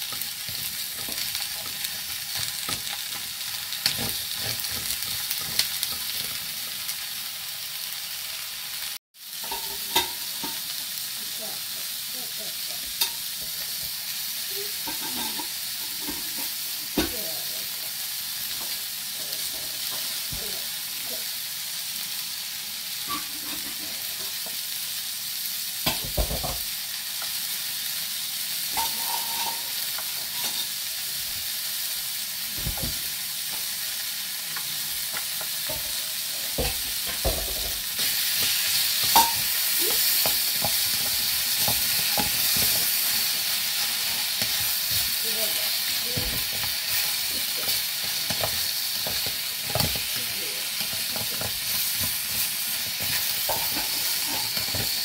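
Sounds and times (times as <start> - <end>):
vegetables sizzling in a pot: 0.0 - 55.0
utensil knocking and scraping pot: 14.8 - 17.1, 35.1 - 43.2, 50.8 - 55.0.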